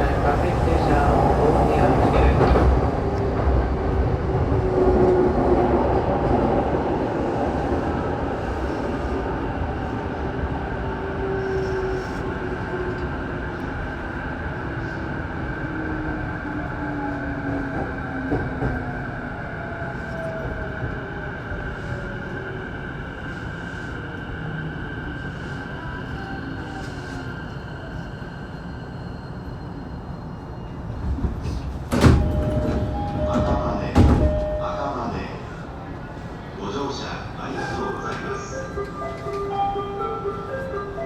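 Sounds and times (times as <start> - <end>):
wheels rumbling on rail: 30.9 - 41.0.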